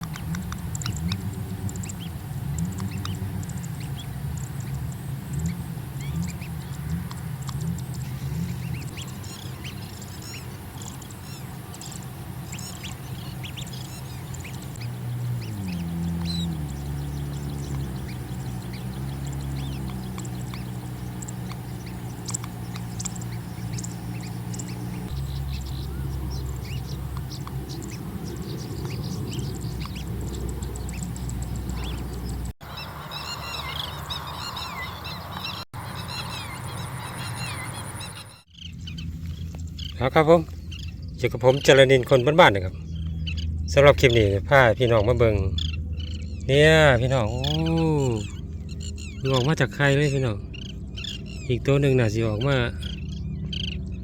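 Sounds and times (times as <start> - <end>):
bird calls and chirps: 0.0 - 54.0
low drone: 0.0 - 54.0.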